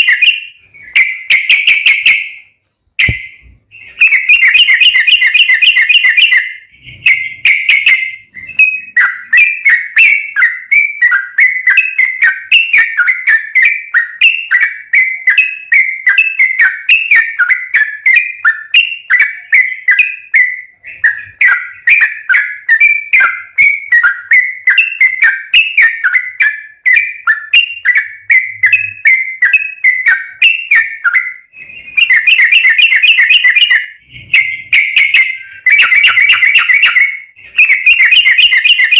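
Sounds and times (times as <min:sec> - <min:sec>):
bird singing whistled notes: 0:00.0 - 0:38.9
bird chattering: 0:20.8 - 0:38.9.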